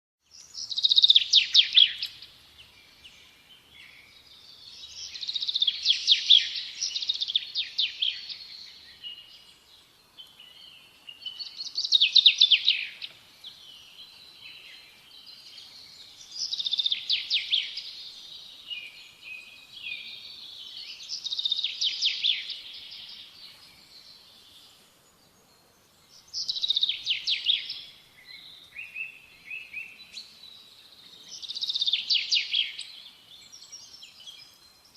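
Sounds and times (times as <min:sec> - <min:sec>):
songbird trilling: 0:00.4 - 0:03.2, 0:03.8 - 0:09.4, 0:10.4 - 0:14.8, 0:16.0 - 0:23.4, 0:26.2 - 0:30.4.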